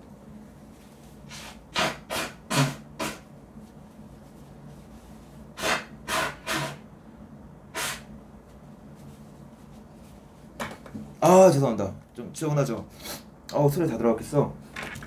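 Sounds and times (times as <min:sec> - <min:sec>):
person blowing nose hard: 0:01.3 - 0:03.2, 0:05.6 - 0:06.8, 0:07.7 - 0:08.1.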